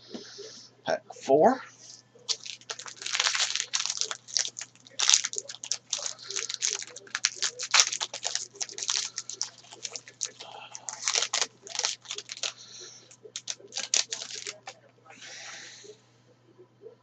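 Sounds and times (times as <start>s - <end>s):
wrapper tearing and crinkling: 2.3s - 14.7s.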